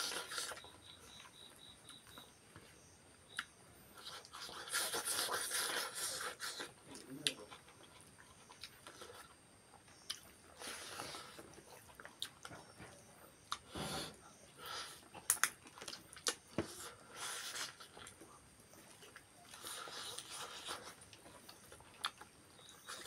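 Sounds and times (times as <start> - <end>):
people chewing food: 0.0 - 23.0
wet mouth clicks and smacks: 15.3 - 16.4.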